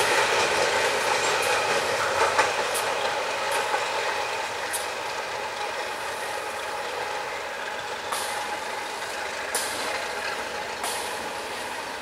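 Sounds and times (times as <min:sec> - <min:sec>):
train rolling and grinding: 0:00.0 - 0:12.0.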